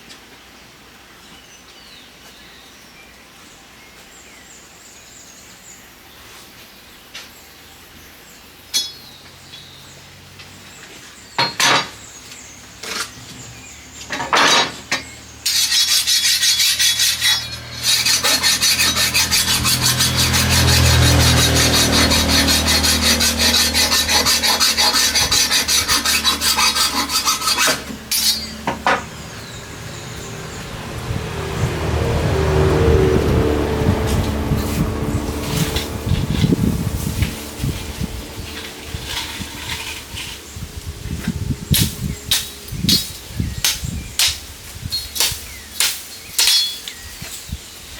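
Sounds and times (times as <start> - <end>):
tool rasping through bamboo: 15.4 - 30.1, 33.5 - 47.4.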